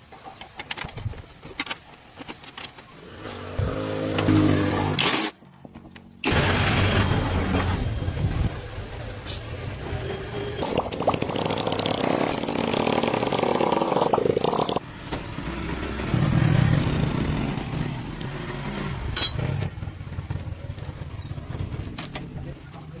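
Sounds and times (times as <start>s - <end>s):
engine running: 6.2s - 22.6s.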